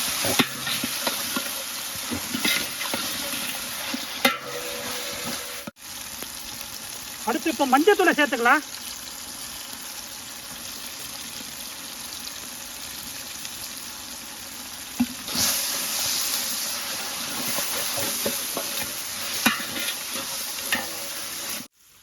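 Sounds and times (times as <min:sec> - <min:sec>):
stirring in pot: 0:00.0 - 0:05.7, 0:17.0 - 0:21.7
food sizzling in oil: 0:00.0 - 0:22.0.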